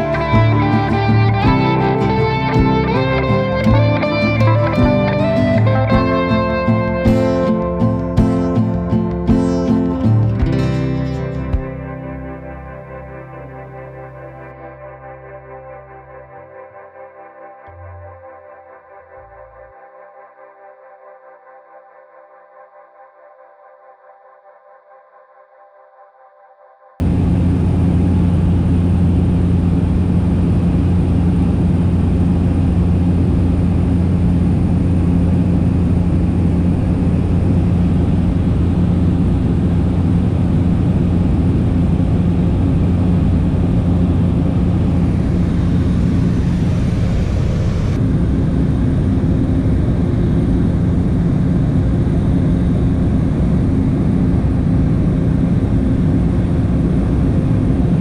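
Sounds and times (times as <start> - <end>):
propeller engine droning: 0.0 - 14.6, 27.0 - 58.0.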